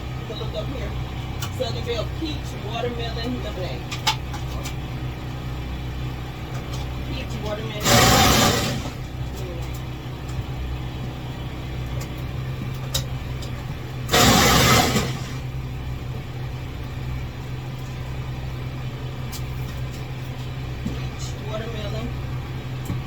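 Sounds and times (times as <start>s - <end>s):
low motor hum: 0.0s - 23.0s
burst of hissing: 7.8s - 9.1s, 14.1s - 15.5s.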